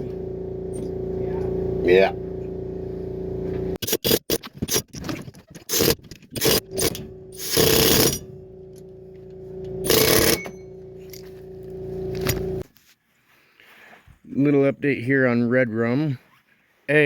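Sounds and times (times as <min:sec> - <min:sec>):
steady hum: 0:00.0 - 0:04.2, 0:05.7 - 0:12.6
impact wrench bursts: 0:05.7 - 0:08.3, 0:09.8 - 0:11.2.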